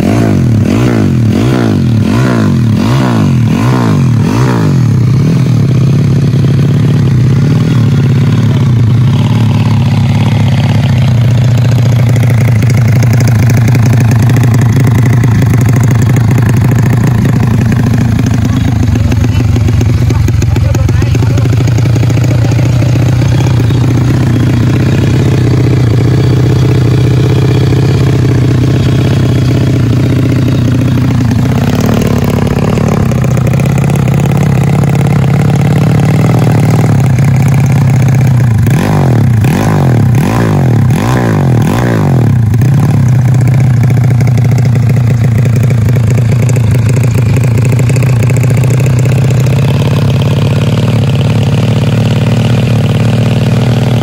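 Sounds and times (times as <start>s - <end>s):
motorcycle engines running: 0.0s - 54.0s
motorcycle throttle blips: 0.0s - 54.0s.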